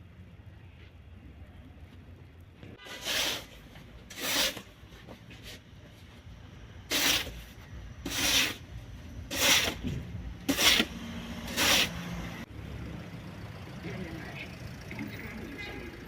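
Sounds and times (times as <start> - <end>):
snow shovel scraping snow: 2.8 - 4.8, 6.9 - 8.6, 9.3 - 9.9, 10.5 - 12.0.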